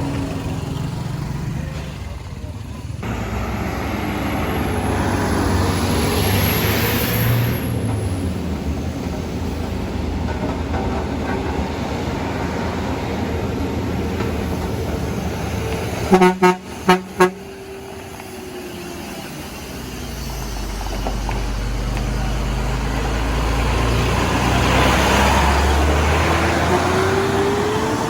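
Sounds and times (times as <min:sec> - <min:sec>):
low engine sound: 0:00.0 - 0:28.0
vehicle engine: 0:00.0 - 0:28.0
vehicle horn honking: 0:16.1 - 0:17.6.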